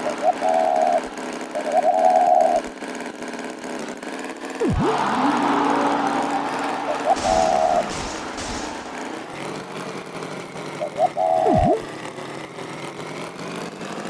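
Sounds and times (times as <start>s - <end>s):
cartoon horn honking: 4.6s - 10.0s
engine running: 4.6s - 11.9s.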